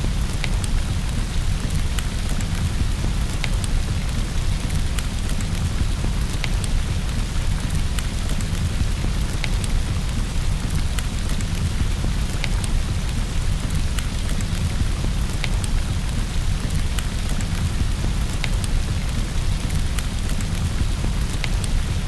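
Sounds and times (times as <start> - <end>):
steady rain: 0.0 - 22.0
wood fire crackling: 0.0 - 22.0.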